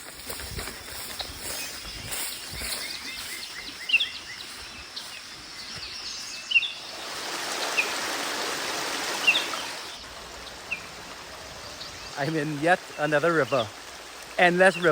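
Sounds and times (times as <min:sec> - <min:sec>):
birds chirping: 0:00.0 - 0:14.9
river water flowing: 0:03.2 - 0:14.9.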